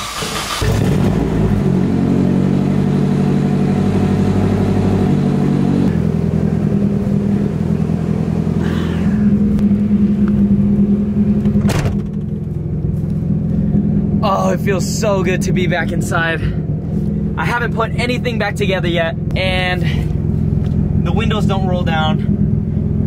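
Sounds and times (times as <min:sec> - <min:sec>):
car engine starting and idling: 0:00.0 - 0:23.0.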